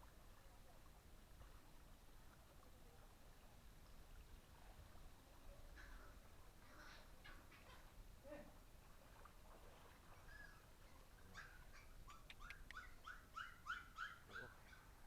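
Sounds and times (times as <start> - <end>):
small animal high-pitched calls: 10.2 - 15.0.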